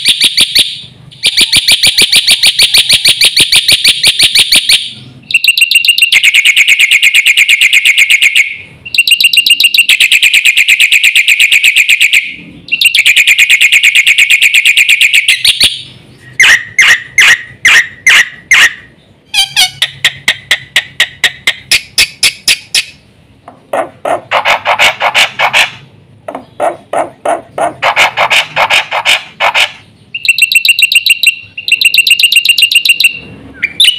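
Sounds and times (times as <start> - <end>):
bird singing high chirps and trills: 29.8 - 33.9.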